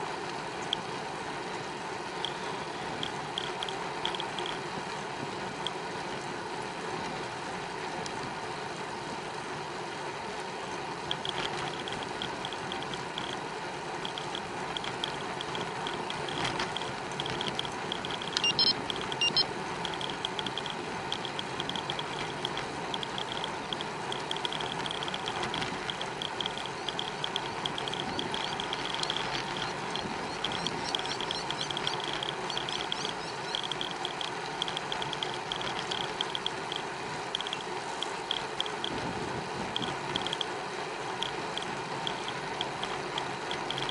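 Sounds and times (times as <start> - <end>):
bicycle rolling and wind noise: 0.0 - 43.9
bicycle freewheel ticking: 11.1 - 39.0, 41.2 - 43.9.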